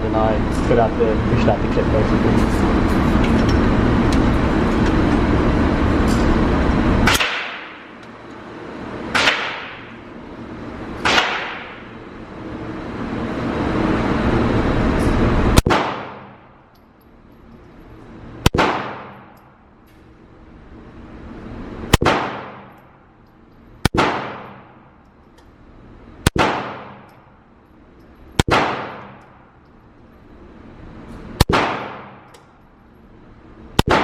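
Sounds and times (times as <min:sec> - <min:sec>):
loud steady background noise: 0:00.0 - 0:34.0
pistol shots with echo: 0:07.1 - 0:07.9, 0:09.2 - 0:09.9, 0:11.0 - 0:11.8, 0:15.6 - 0:16.4, 0:18.4 - 0:19.3, 0:22.0 - 0:22.7, 0:23.8 - 0:24.7, 0:26.3 - 0:27.0, 0:28.4 - 0:29.2, 0:31.4 - 0:32.3, 0:33.8 - 0:34.0.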